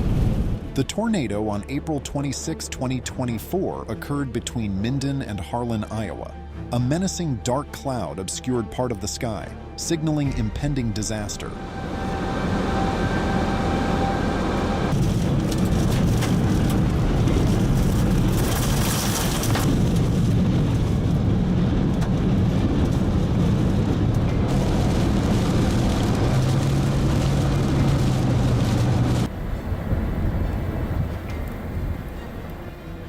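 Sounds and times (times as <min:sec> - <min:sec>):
rushing storm wind: 0:00.0 - 0:00.8, 0:10.3 - 0:33.0.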